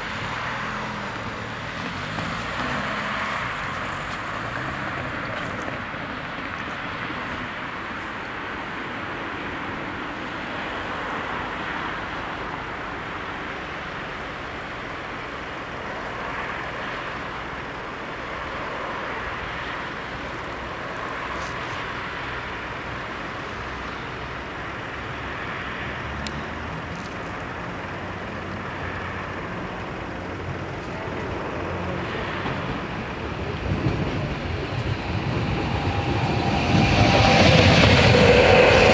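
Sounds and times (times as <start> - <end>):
train engine hum: 0.0 - 38.9
steady rushing background: 32.5 - 38.9.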